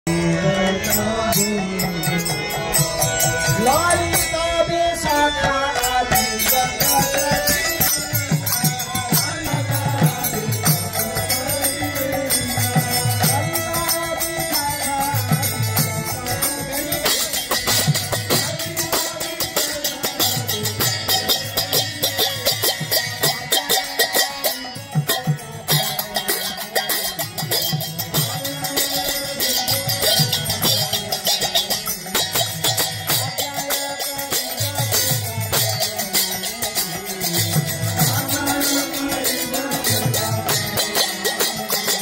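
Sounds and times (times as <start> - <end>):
small hand cymbals: 0.6 - 42.0.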